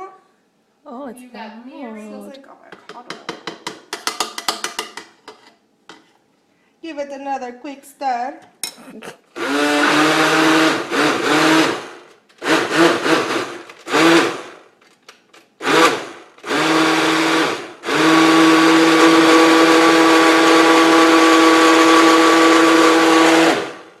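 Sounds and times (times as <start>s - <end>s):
blender running: 9.3s - 14.6s, 15.6s - 24.0s.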